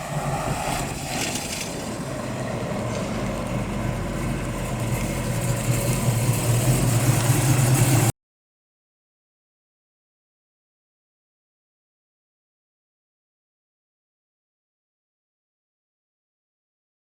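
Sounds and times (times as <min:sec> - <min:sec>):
car engine droning: 0:00.0 - 0:08.1.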